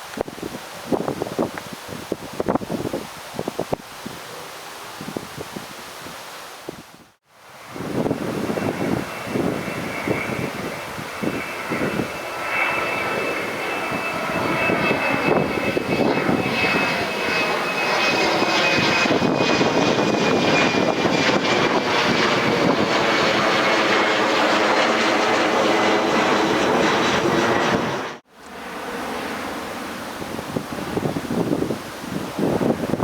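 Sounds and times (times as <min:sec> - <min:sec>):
wind noise on microphone: 0:00.0 - 0:28.2, 0:30.0 - 0:33.0
jet engines roaring past: 0:07.4 - 0:33.0.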